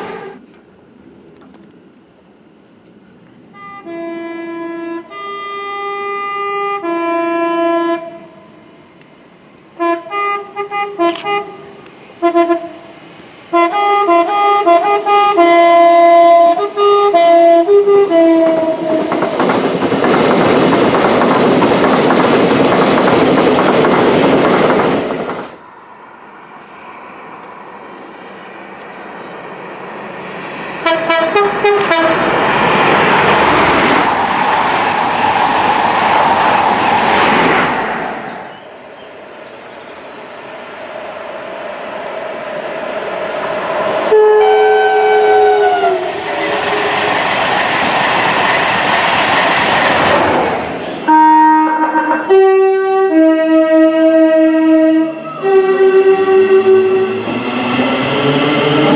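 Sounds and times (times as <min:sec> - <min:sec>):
train passing with rushing roar: 0:00.0 - 0:58.9
two-tone train horn toots: 0:03.5 - 0:08.6, 0:09.8 - 0:19.2, 0:30.8 - 0:32.4, 0:44.1 - 0:46.9, 0:51.0 - 0:57.4.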